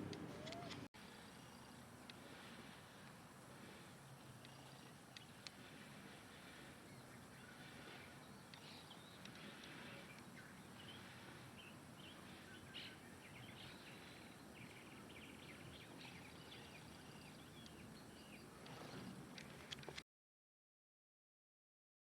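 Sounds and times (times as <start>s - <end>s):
small birds chirping: 0.3s - 19.9s.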